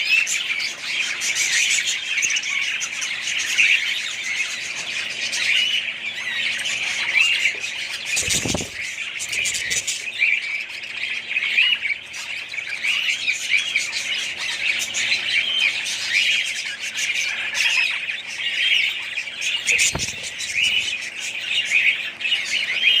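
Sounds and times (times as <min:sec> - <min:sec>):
budgerigars chattering: 0:00.0 - 0:23.0
soft thump: 0:19.8 - 0:20.3.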